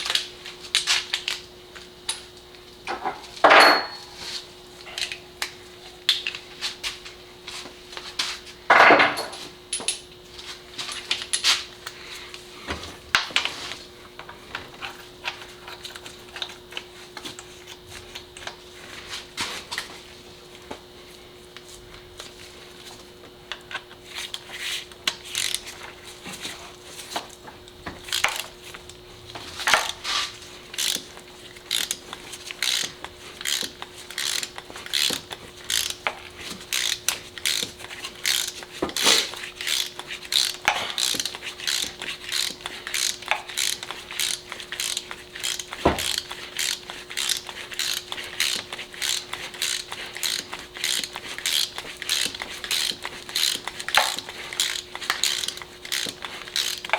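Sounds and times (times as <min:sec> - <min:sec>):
ratchet wrench clicking: 0:25.0 - 0:25.9, 0:28.0 - 0:29.0, 0:29.7 - 0:30.0, 0:30.7 - 0:56.9.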